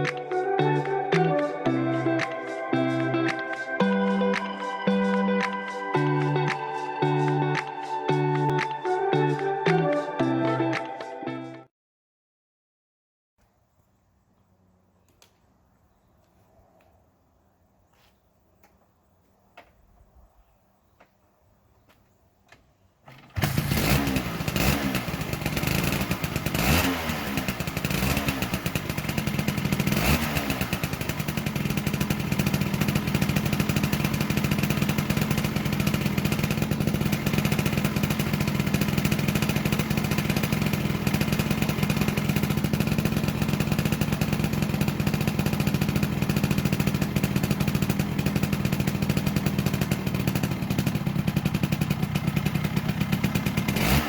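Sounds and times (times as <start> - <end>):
scooter engine revving and idling: 23.1 - 54.0.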